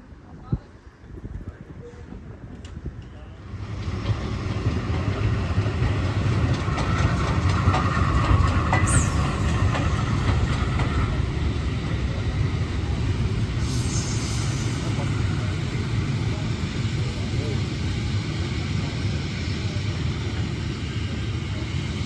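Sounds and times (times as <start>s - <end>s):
train rumbling past: 1.8s - 22.0s
wheels clattering over rail joints: 3.8s - 12.7s
high squeal: 8.7s - 10.0s, 13.5s - 15.6s.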